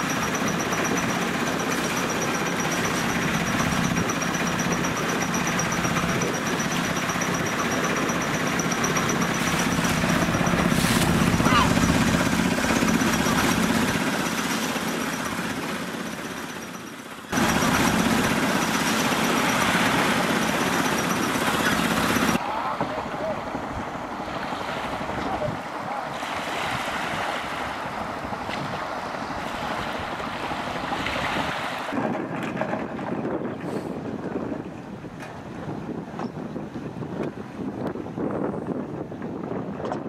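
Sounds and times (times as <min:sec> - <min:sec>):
water noise: 0:00.0 - 0:35.8
boat engine running: 0:00.0 - 0:40.0
wind buffeting microphone: 0:26.7 - 0:40.0.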